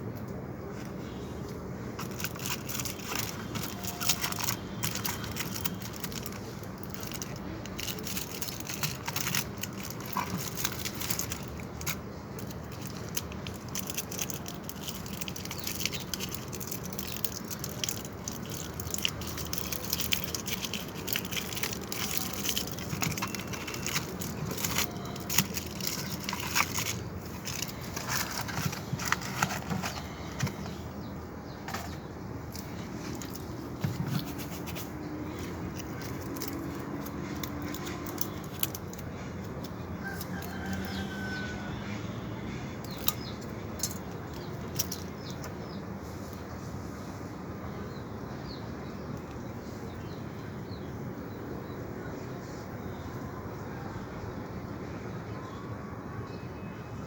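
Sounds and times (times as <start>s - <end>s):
crackling and clicking: 2.0s - 30.8s, 31.7s - 41.0s, 42.8s - 45.6s.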